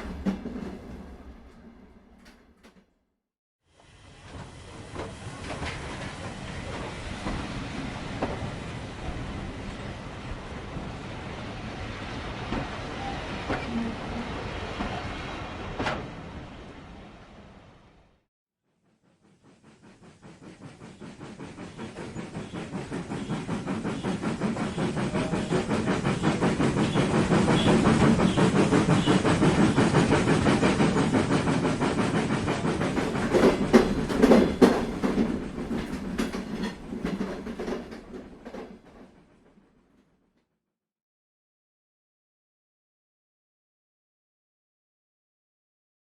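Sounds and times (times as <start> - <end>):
train wheels clicking on rails: 0.0 - 2.9, 3.8 - 10.1, 19.2 - 40.1.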